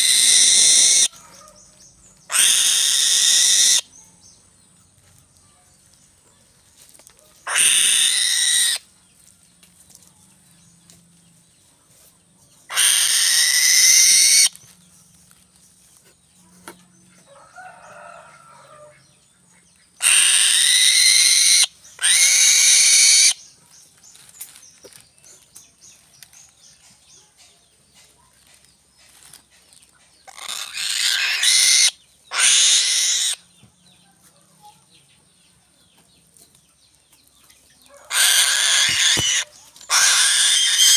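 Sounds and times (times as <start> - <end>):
harsh bird calls: 0.0 - 1.6, 2.2 - 4.0, 7.4 - 8.9, 12.7 - 14.8, 20.0 - 25.4, 28.4 - 33.6, 37.9 - 40.9.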